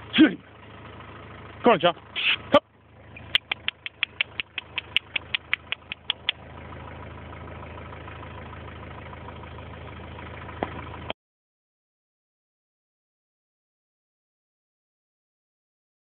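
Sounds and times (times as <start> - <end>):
vehicle engine idling: 0.0 - 11.2
sharp clicks: 3.3 - 6.4.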